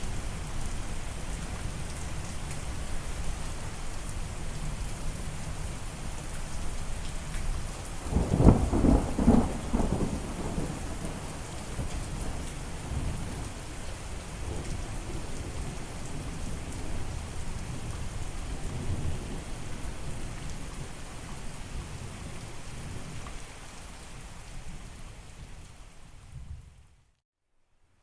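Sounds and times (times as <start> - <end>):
steady rain: 0.0 - 27.2
low rolling thunder: 7.9 - 23.2.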